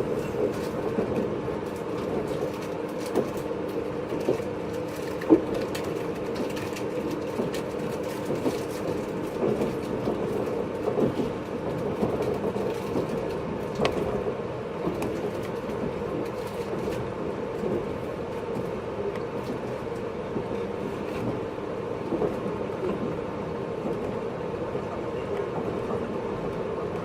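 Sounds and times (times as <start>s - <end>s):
electric train running rumble: 0.0s - 27.0s.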